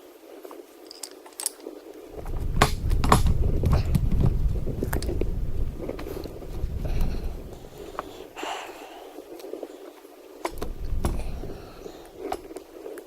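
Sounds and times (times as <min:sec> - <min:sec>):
metal tools clinking and clanking: 0:00.8 - 0:01.6
low rumble: 0:02.1 - 0:08.3, 0:10.5 - 0:12.3.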